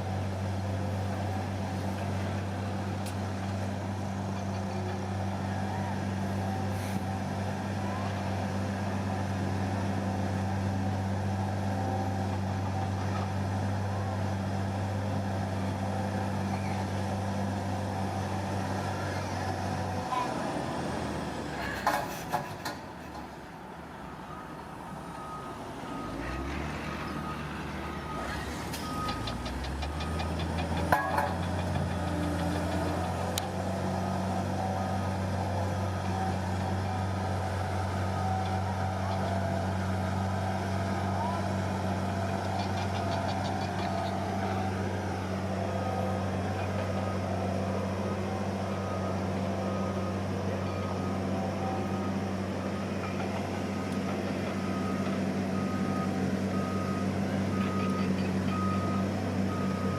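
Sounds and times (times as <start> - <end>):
bulldozer diesel engine running: 0.0 - 59.9
reversing alarm beeping: 24.0 - 32.9, 37.9 - 59.9.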